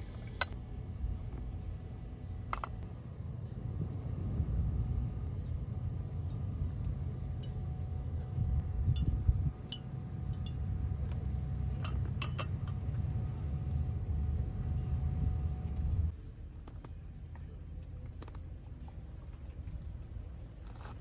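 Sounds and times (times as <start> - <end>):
steady low rumble: 0.0 - 21.0
light clinks: 8.8 - 13.6, 14.6 - 15.8.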